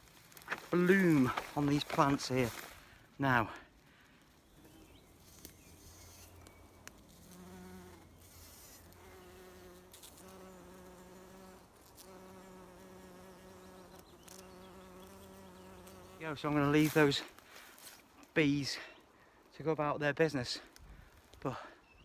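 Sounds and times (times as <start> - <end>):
bees buzzing: 5.7 - 16.8.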